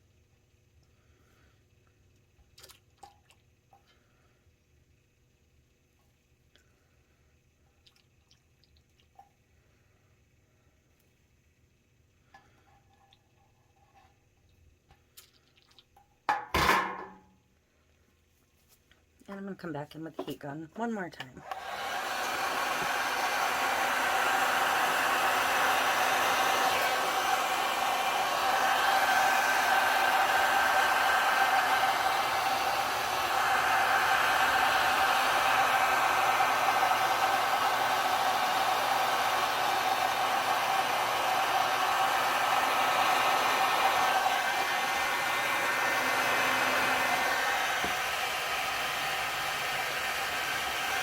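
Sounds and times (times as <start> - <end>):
heat gun blowing: 21.4 - 51.0.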